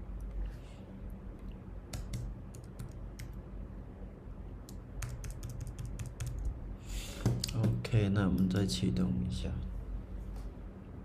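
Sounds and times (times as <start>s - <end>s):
typing on keyboard: 1.9s - 3.4s, 4.7s - 6.6s.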